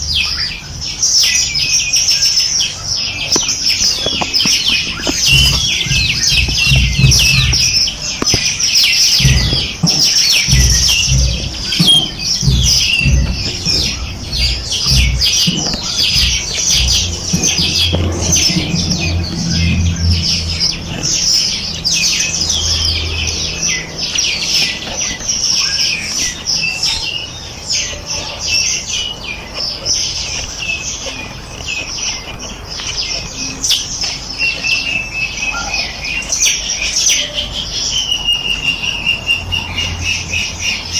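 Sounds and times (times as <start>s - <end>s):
small birds chirping: 0.0s - 40.9s
low thuds and rumbling: 3.2s - 27.0s.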